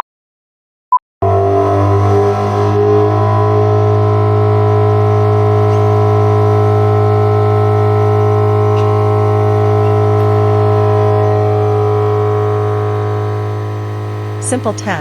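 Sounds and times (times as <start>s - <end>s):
industrial blower humming: 1.2s - 15.0s.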